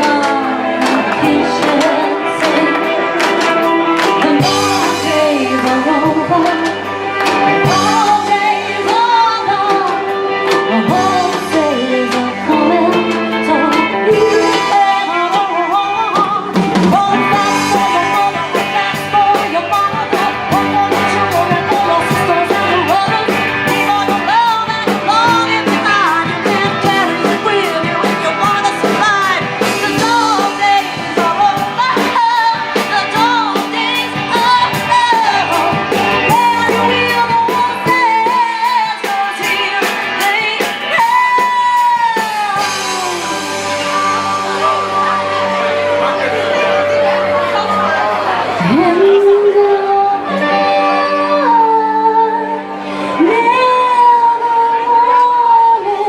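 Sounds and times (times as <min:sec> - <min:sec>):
guitar: 0:00.0 - 0:56.0
person singing: 0:00.0 - 0:56.0
steady drum beat: 0:16.1 - 0:45.1.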